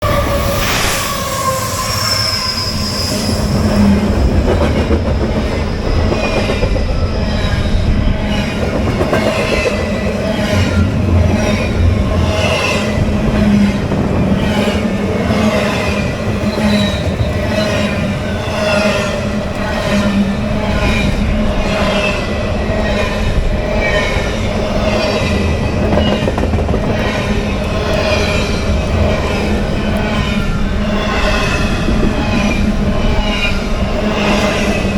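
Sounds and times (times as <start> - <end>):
train low rumble: 0.0 - 34.9
train wheels squealing: 0.0 - 34.9
train wheels clacking over rail joints: 4.1 - 7.6, 8.2 - 18.0, 25.1 - 28.4.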